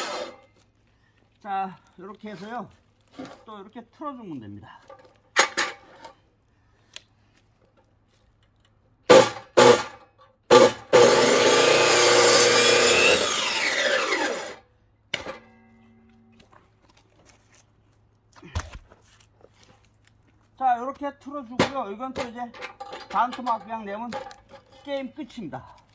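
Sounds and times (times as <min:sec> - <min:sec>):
chainsaw cutting log: 0:00.0 - 0:00.5, 0:09.1 - 0:14.6.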